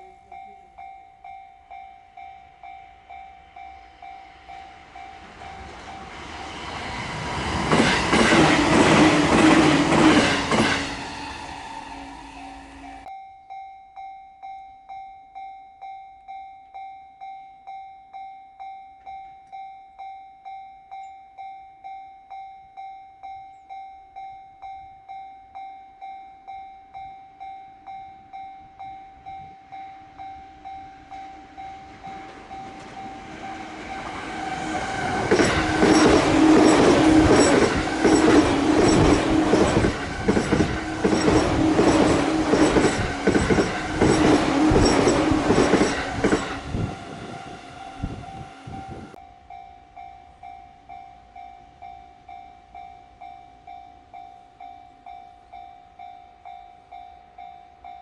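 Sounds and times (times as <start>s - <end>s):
level-crossing warning bell ringing: 0.0s - 58.0s
train passing at speed: 1.7s - 13.1s, 28.3s - 54.7s
wheels clattering over rail joints: 32.0s - 46.8s.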